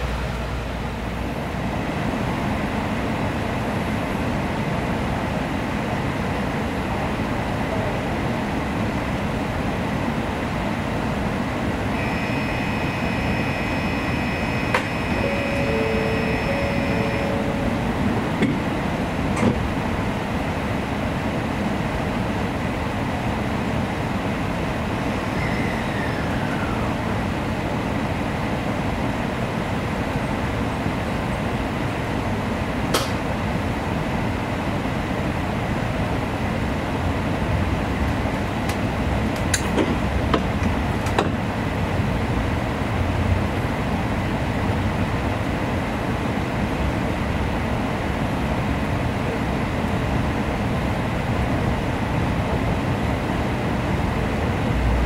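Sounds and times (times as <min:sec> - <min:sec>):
train interior hum and hiss: 0:00.0 - 0:55.0
electronic tones: 0:12.0 - 0:18.0.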